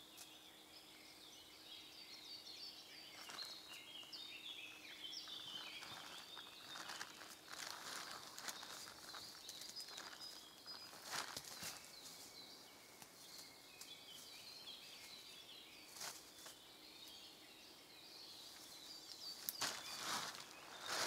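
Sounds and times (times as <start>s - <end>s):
faint birdsong: 0.0s - 21.0s
rustling: 5.2s - 12.3s, 19.4s - 21.0s.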